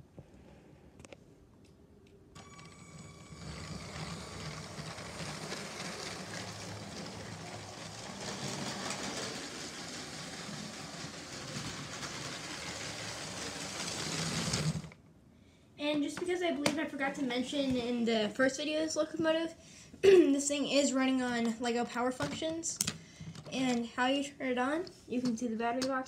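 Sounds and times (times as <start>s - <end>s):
train rumbling rattle: 3.5s - 14.9s.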